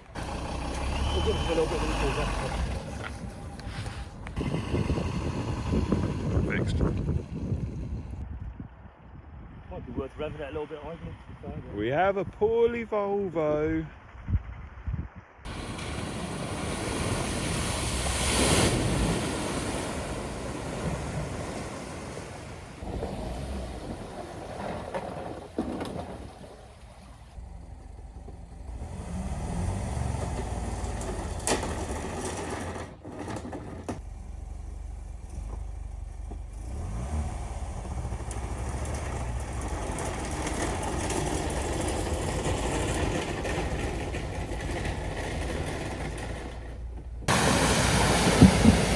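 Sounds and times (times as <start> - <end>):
car engine revving: 0.0 - 7.4, 26.8 - 32.3, 34.0 - 48.9.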